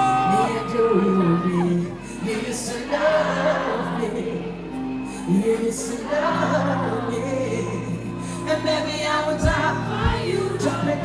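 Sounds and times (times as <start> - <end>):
person singing: 0.0 - 11.0.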